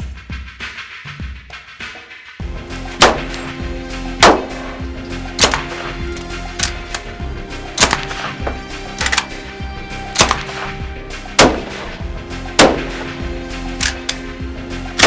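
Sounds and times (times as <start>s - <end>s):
sharp gunshot-like bangs: 2.8s - 3.5s, 7.7s - 8.2s, 10.2s - 10.5s.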